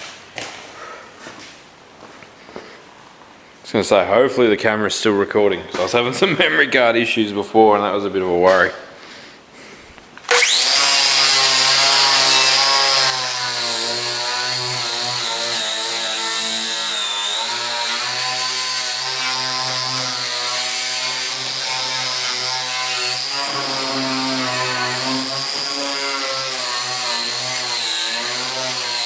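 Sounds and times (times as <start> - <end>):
angle grinder whining: 10.3 - 29.0.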